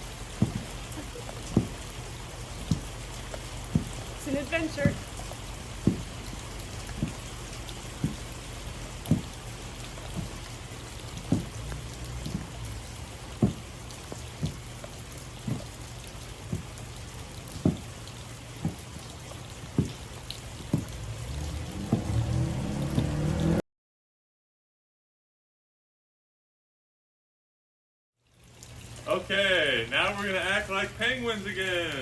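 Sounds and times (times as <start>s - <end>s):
heavy stomping footsteps: 0.0s - 23.3s.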